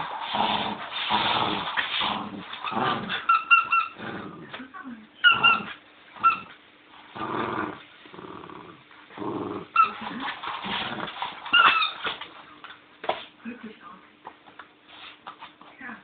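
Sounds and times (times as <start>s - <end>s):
dog growling: 0.0s - 12.1s
squeaky toy squeaking: 3.3s - 4.0s, 5.2s - 6.5s, 9.8s - 10.1s, 11.5s - 12.0s.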